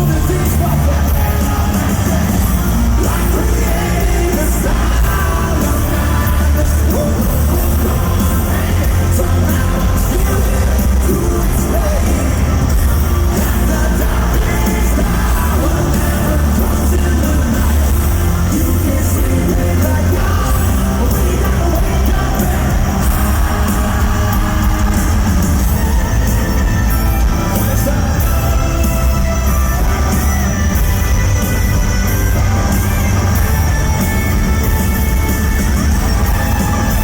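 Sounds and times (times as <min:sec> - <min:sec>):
person singing: 0:00.0 - 0:26.6
hard rock band playing: 0:00.0 - 0:37.0.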